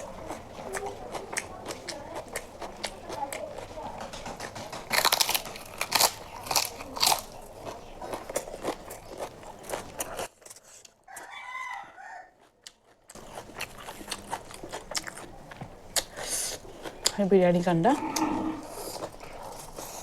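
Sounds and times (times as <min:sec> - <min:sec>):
close chewing with crunching: 0:00.0 - 0:20.0
wet mouth clicks: 0:18.0 - 0:19.1.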